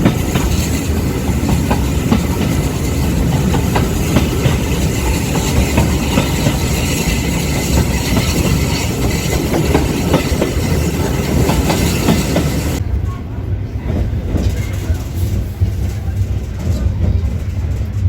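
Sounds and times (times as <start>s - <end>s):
wheels clicking over rail joints: 0.0s - 12.8s
train coach rumble: 0.0s - 18.0s.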